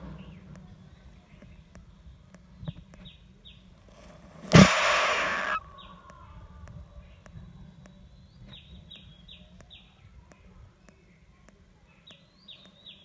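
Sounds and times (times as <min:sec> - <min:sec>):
small bird chirping: 0:00.0 - 0:04.0, 0:04.6 - 0:13.0
faint regular ticking: 0:00.3 - 0:03.1.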